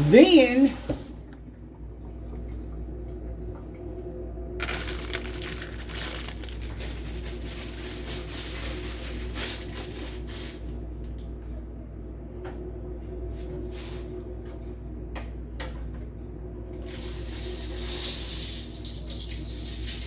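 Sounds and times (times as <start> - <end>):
noodle packet rustling: 4.6 - 10.0.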